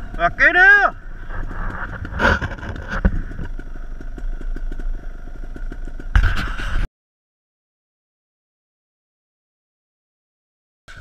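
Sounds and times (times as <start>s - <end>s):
dirt bike engine idling: 0.0s - 6.9s.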